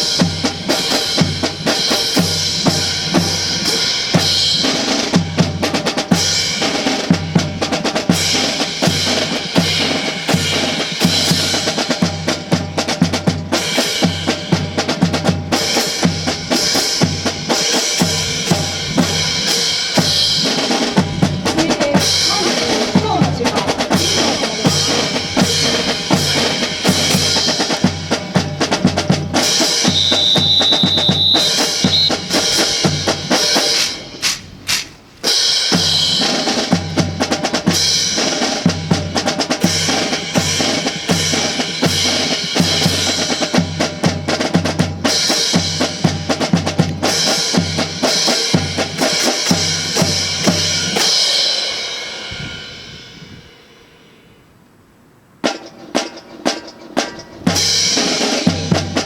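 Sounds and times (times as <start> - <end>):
drums playing fast rhythm: 0.0 - 54.2, 55.4 - 59.0
high steady tone: 29.8 - 32.6.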